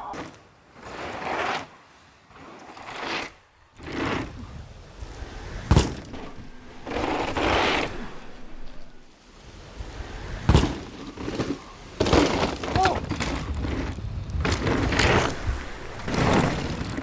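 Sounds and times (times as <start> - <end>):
bike rattling: 0.0 - 17.0
tyres sliding over dirt: 0.0 - 17.0
hard bike landing impact: 5.3 - 7.9, 10.0 - 15.4.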